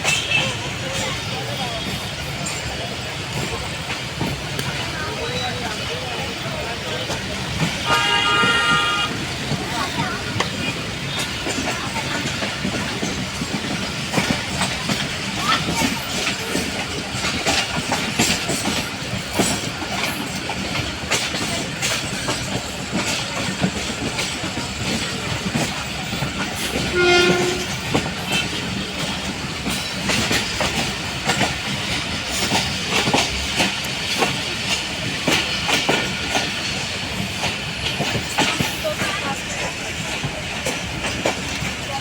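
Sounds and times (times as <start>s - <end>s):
train wheels clicking on rails: 0.0s - 42.0s
train horn blast: 7.8s - 9.3s, 26.8s - 27.9s.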